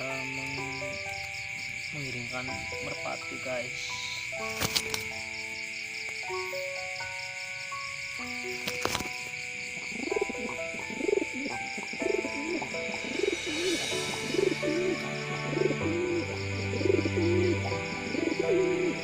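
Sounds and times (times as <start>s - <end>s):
background music of held notes: 0.0s - 19.0s
pigeon cooing: 9.8s - 19.0s.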